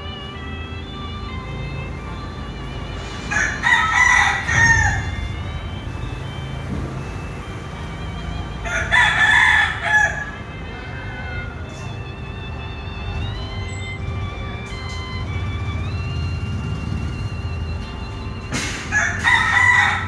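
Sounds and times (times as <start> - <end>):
rooster crowing: 3.2 - 5.3, 8.6 - 11.5, 18.7 - 20.0.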